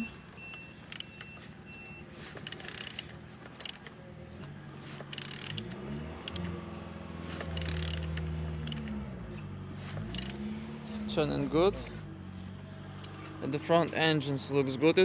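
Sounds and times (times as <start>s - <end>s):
engine hum: 0.0s - 15.0s
tool clicking and ratcheting: 0.8s - 1.2s, 2.3s - 6.5s, 7.4s - 10.5s.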